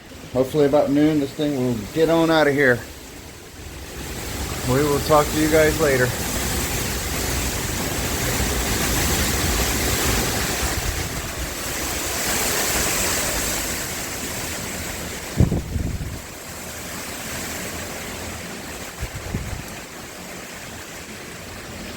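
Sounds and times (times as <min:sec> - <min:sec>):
gusty wind on microphone: 0:03.0 - 0:20.2.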